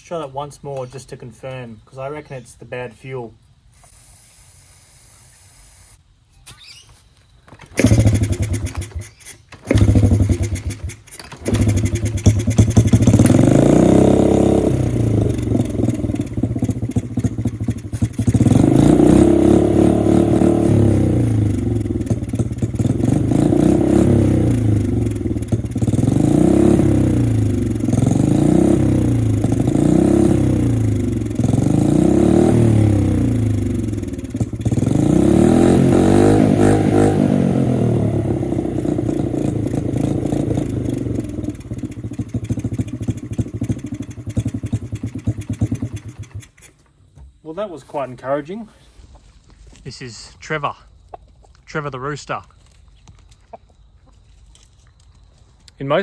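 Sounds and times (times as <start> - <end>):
small motorbike engine revving: 3.7 - 46.8.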